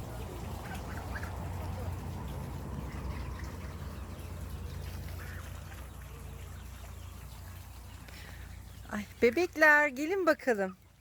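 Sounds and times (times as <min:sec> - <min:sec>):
low steady rumble: 0:00.0 - 0:11.0
ducks quacking: 0:00.2 - 0:07.8.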